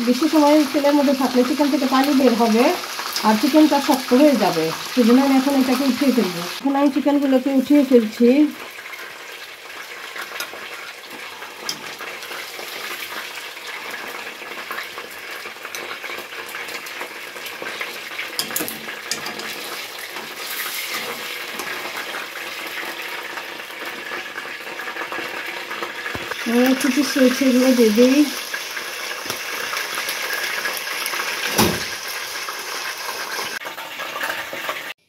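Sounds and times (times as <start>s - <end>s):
chicken frying in oil: 0.0s - 35.0s
metal tongs clicking on pot: 18.4s - 19.6s.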